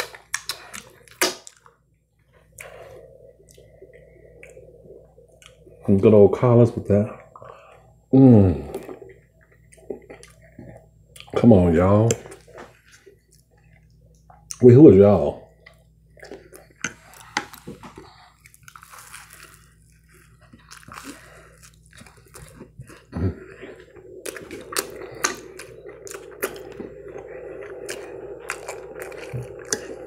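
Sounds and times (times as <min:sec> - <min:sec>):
person chewing food: 0:00.0 - 0:05.8, 0:08.7 - 0:11.4, 0:15.5 - 0:30.0
faint steady hum: 0:00.0 - 0:30.0.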